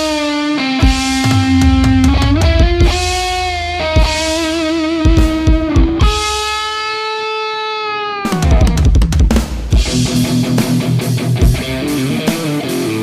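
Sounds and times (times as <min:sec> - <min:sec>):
electric guitar lead: 0:00.0 - 0:13.0
bass: 0:00.8 - 0:06.4, 0:08.4 - 0:13.0
drum hits: 0:00.8 - 0:06.5, 0:08.4 - 0:12.4.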